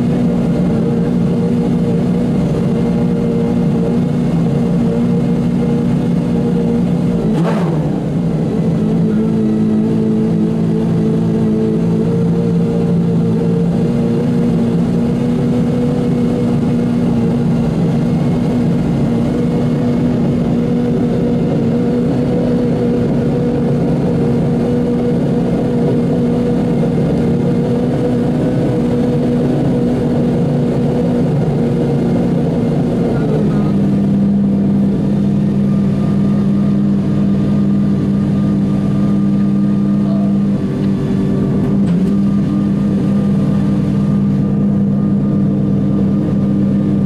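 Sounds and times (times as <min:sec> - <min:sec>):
car engine idling: 0:00.0 - 0:47.0.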